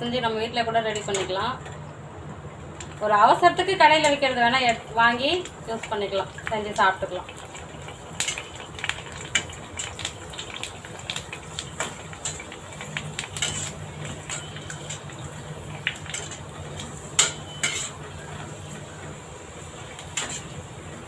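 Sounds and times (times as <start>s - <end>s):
food frying in hot oil: 0.0s - 21.0s
metal ladle clinking against pan: 17.2s - 18.0s.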